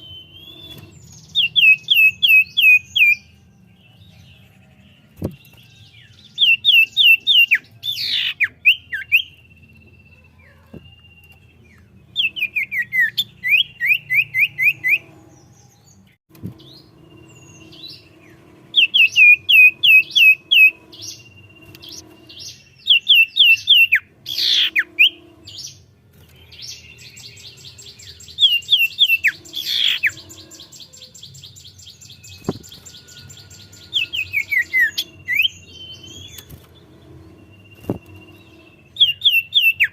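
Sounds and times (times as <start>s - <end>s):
bird rapid trill: 0.0s - 3.3s, 16.4s - 39.9s
bird whistled song: 0.0s - 4.5s, 5.2s - 39.9s
bird sweeping notes: 16.3s - 39.9s.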